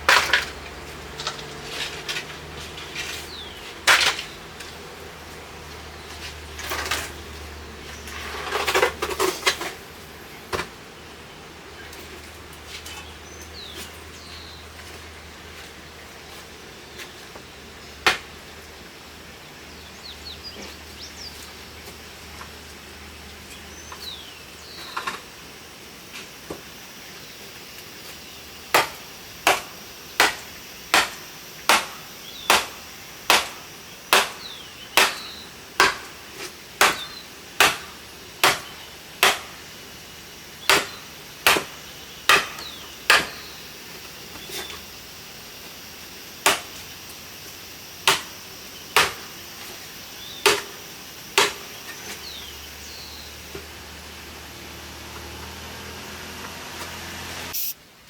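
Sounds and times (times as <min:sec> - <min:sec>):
hand tool striking wood: 0:28.7 - 0:39.6, 0:40.6 - 0:43.4, 0:46.4 - 0:46.7, 0:48.0 - 0:48.3, 0:48.9 - 0:49.3, 0:50.4 - 0:51.7
faint bird chirps: 0:57.6 - 0:57.8.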